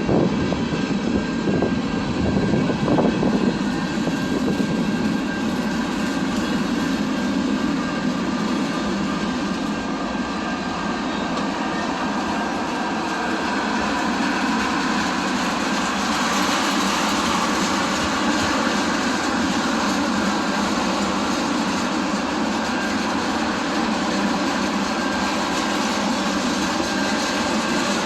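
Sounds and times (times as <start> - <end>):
train wheels on rails: 0.0 - 28.0.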